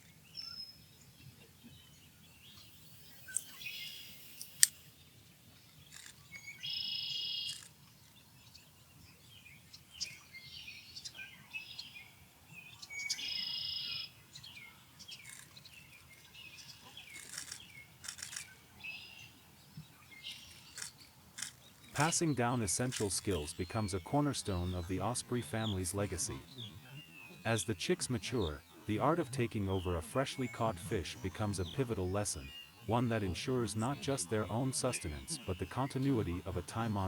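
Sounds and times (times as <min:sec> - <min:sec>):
osprey chirping: 0:15.1 - 0:19.4.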